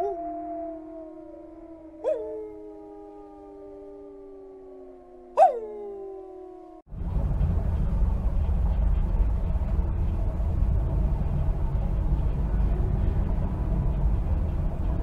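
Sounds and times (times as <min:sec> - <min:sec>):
wolf howling: 0:00.0 - 0:06.9.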